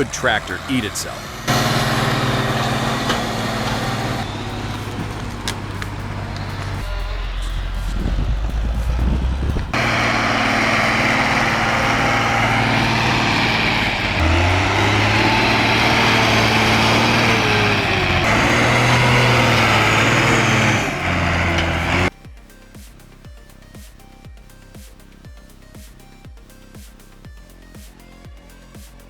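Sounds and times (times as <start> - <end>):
tractor diesel engine under load: 0.0 - 22.1.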